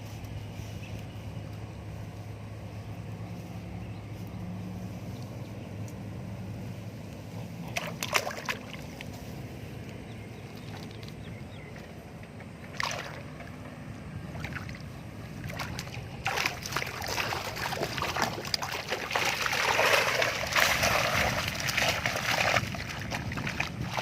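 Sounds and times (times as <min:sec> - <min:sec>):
water splashing and sloshing: 0:06.6 - 0:24.0.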